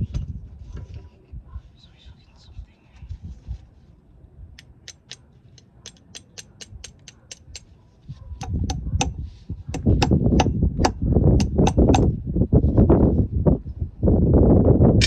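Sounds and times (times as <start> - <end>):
low rumbling: 8.2 - 15.0.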